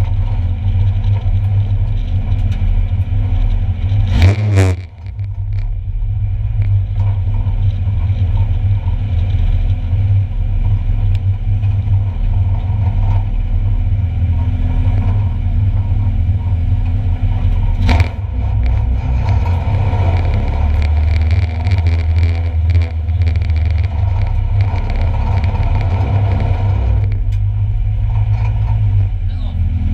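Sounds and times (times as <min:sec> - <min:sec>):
rattling and clicking: 0:00.0 - 0:05.8, 0:14.2 - 0:29.2
race car engines rumbling: 0:00.0 - 0:29.9.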